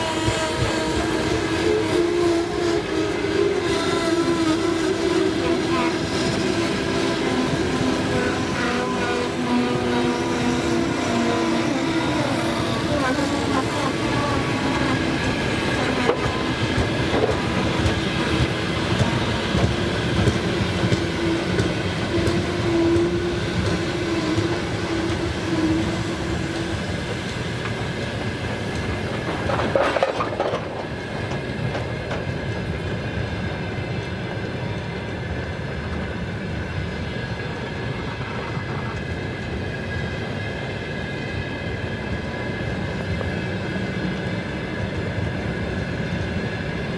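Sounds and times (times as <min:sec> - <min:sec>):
freight train rumbling past: 0:00.0 - 0:46.9
wheels clattering over rail joints: 0:26.7 - 0:33.0.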